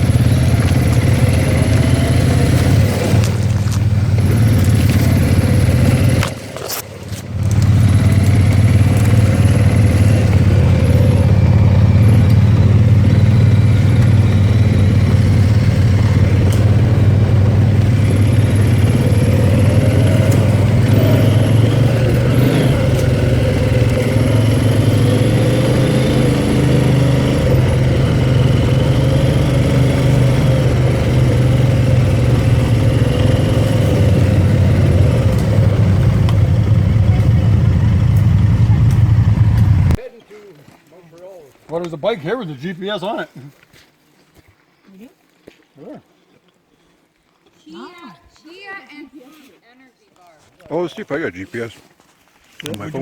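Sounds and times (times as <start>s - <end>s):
quad bike engine running: 0.0s - 40.0s.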